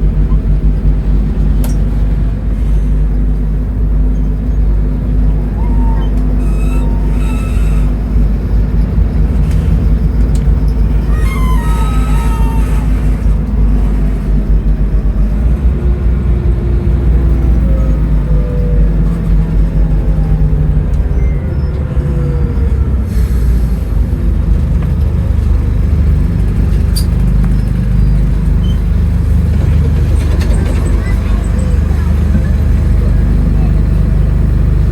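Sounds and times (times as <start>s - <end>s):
bus engine rumble: 0.0s - 34.9s
whining tones sliding in pitch: 5.4s - 8.2s, 10.9s - 13.7s.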